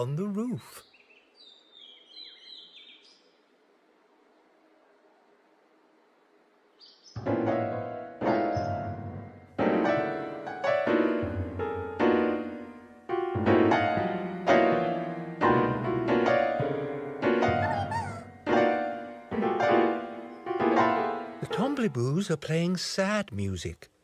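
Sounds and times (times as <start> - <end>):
slow piano chords: 7.2 - 22.2.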